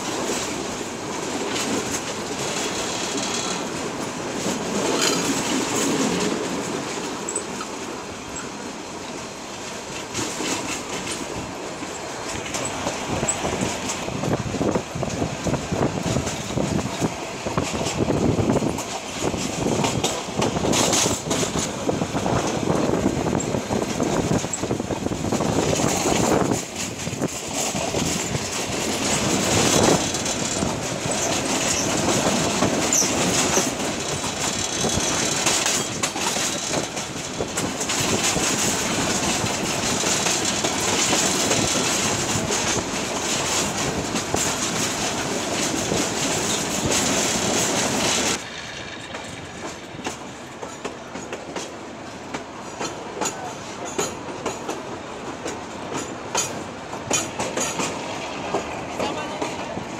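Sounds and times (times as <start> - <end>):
train wheels clattering: 0.0 - 59.9.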